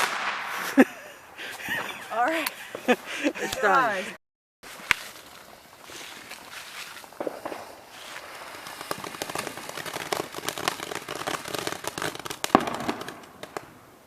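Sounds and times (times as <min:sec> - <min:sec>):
firework bang: 0:00.0 - 0:01.0, 0:07.1 - 0:13.7
fireworks crackling: 0:00.0 - 0:14.0.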